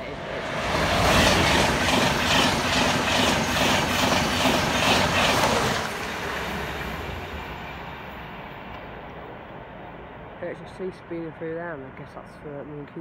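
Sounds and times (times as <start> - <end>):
train wheels rushing on rails: 0.0 - 9.2.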